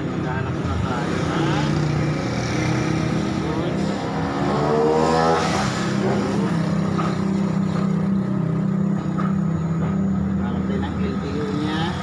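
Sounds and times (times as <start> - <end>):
motor engine running: 0.0 - 12.0.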